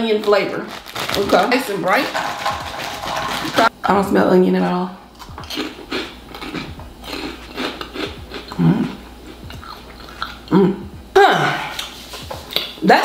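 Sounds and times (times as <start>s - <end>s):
person crunching and chewing snack: 0.7s - 1.4s, 5.1s - 10.6s
closed-mouth hum: 5.0s - 12.8s.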